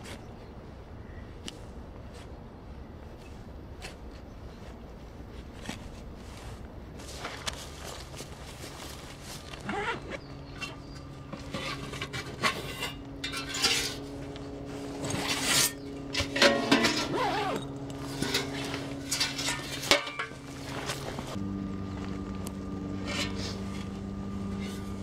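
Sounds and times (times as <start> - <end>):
low hum: 0.2 - 25.0
metal cookware clinking: 11.6 - 14.0, 15.6 - 17.2, 18.1 - 20.4.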